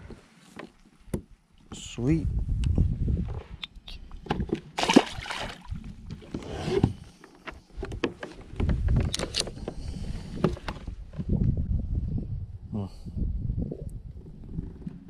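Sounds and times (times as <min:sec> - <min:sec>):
clicks and knocks against hull: 0:04.1 - 0:04.7, 0:06.0 - 0:11.4.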